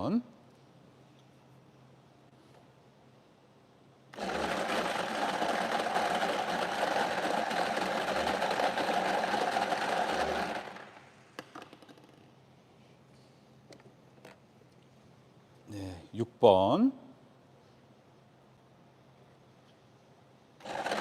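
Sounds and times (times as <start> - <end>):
lottery balls rattling in machine: 4.2 - 12.2, 20.6 - 21.0.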